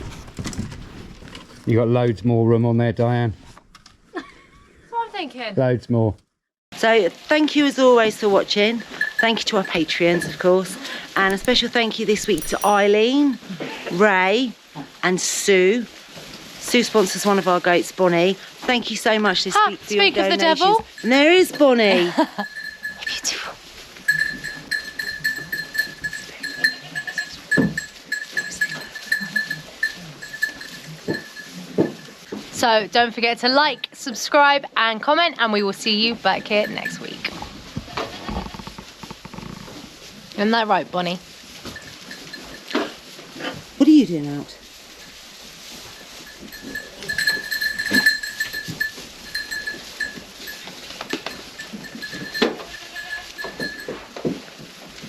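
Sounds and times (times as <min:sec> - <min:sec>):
high thin ringing tone: 0:12.2 - 0:13.1.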